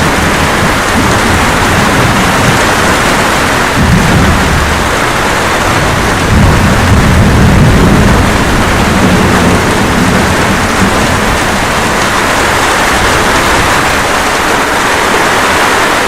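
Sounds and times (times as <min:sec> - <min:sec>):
steady rain: 0:00.0 - 0:16.0
thunder rumble: 0:00.0 - 0:16.0.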